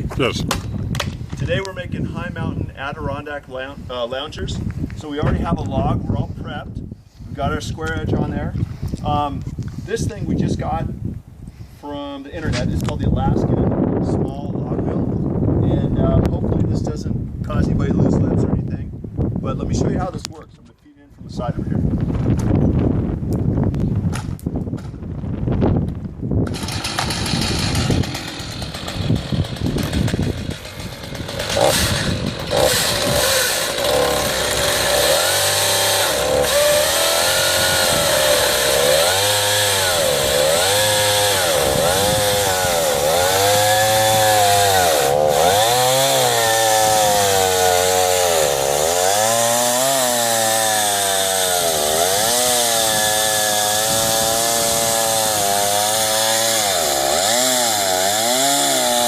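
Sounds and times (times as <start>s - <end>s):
chainsaw cutting through log: 26.4s - 59.0s.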